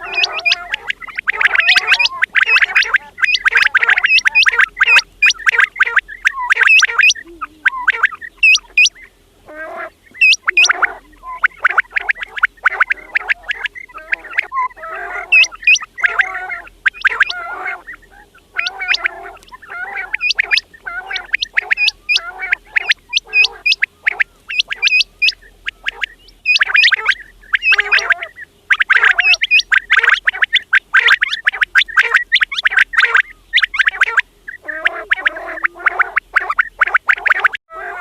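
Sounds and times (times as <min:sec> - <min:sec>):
quails calling: 0:00.0 - 0:38.0.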